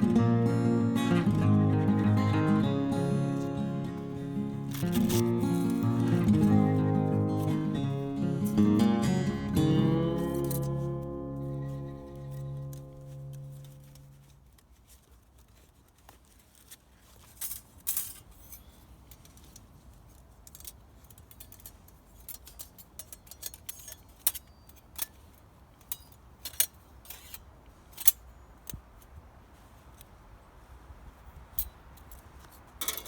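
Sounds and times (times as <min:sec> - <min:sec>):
metal parts clinking: 0:03.4 - 0:08.8, 0:09.6 - 0:14.4, 0:17.2 - 0:28.2, 0:32.8 - 0:33.0.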